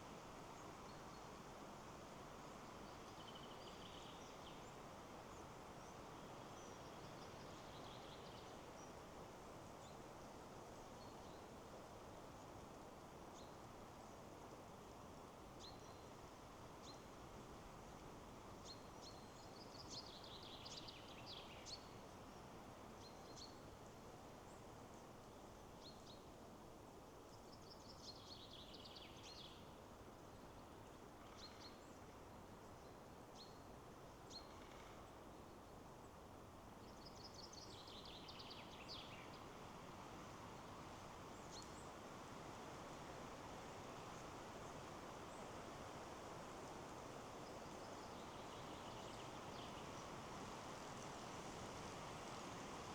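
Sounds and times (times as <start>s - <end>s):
wind in trees: 0.0s - 52.9s.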